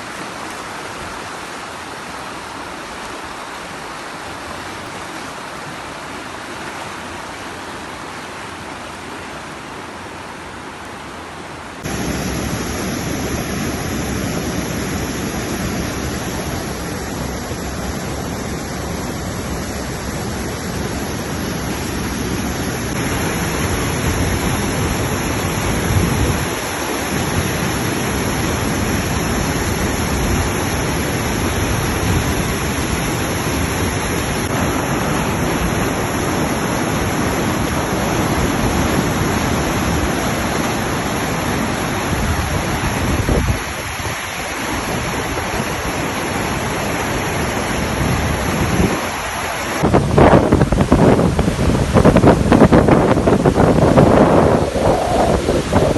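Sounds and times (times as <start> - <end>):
floodwater rushing: 0.0 - 55.9.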